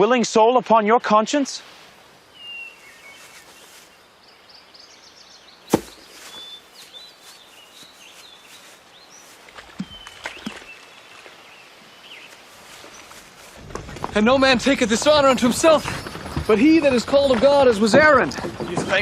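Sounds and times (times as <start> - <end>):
birds chirping: 2.2 - 19.0
sharp knocks: 5.7 - 6.2.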